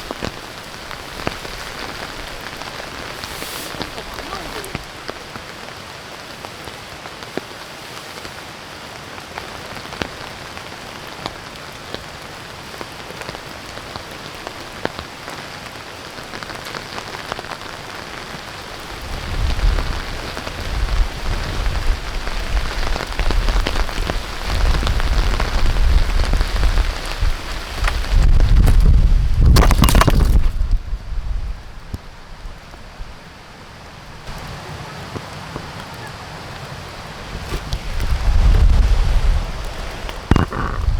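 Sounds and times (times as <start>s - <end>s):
steady rain falling: 0.0s - 40.9s
wind buffeting microphone: 18.8s - 33.2s, 34.3s - 40.9s.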